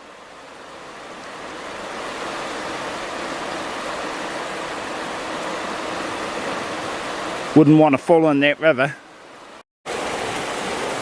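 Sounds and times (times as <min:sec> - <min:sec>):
fast river water rushing: 0:00.0 - 0:11.0.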